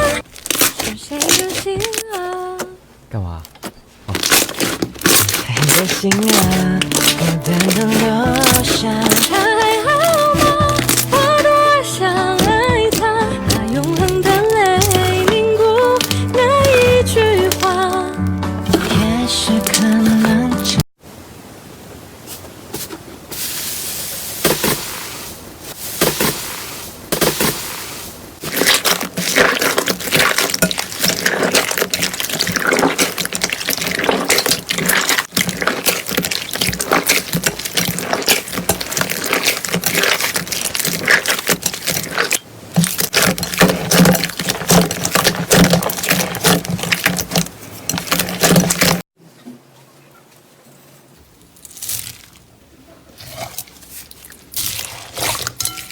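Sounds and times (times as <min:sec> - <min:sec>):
slime squishing with wet clicks: 0:28.5 - 0:48.9.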